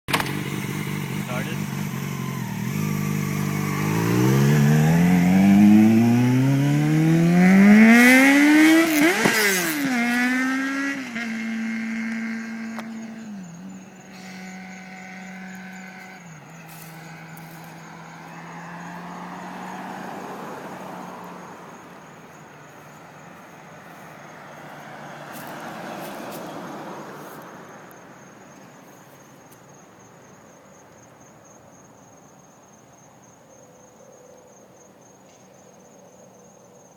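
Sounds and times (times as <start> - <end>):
motorcycle engine accelerating: 0.1 - 21.8
crickets chirping faintly: 0.5 - 36.9.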